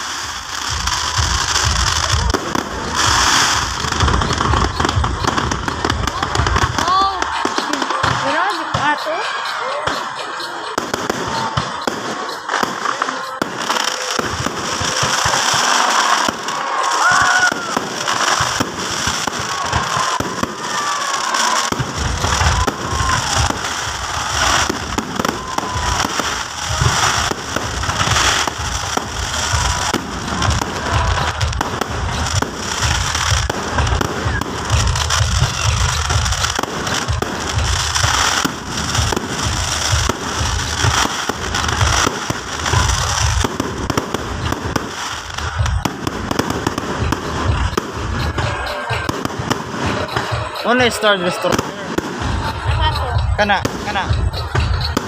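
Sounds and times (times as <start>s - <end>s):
deep fireworks booms: 0.0s - 8.3s, 10.8s - 55.0s
fireworks bangs and crackling: 0.0s - 55.0s.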